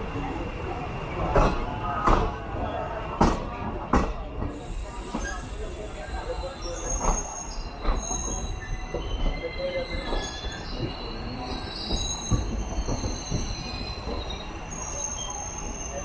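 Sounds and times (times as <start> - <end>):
train wheels squealing: 4.2 - 16.0.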